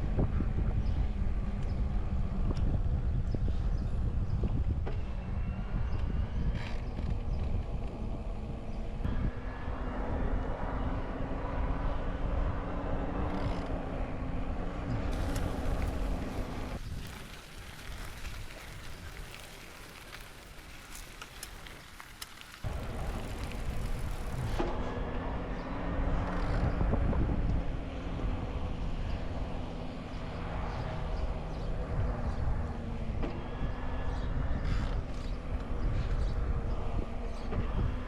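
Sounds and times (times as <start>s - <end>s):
wind: 0.0s - 38.0s
bicycle rolling noise: 11.4s - 38.0s.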